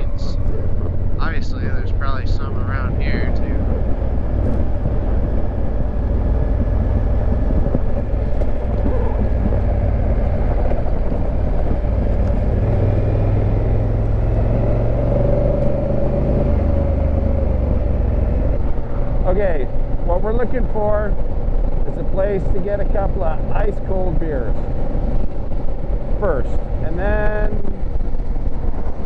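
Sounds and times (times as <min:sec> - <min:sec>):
tyre noise: 0:00.0 - 0:18.4
motorcycle engine running: 0:00.0 - 0:29.0
wind noise: 0:00.0 - 0:29.0.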